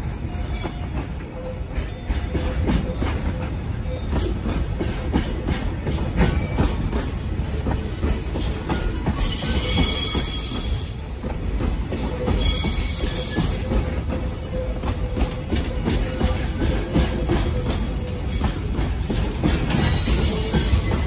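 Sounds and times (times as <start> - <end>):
high-pitched wheel squeal: 7.7 - 18.6.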